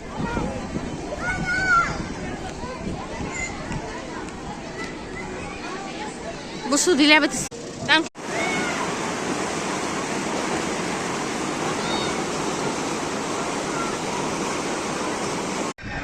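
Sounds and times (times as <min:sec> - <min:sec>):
faint voices: 0:00.0 - 0:09.3, 0:11.2 - 0:16.0
steady rushing noise: 0:07.4 - 0:15.9.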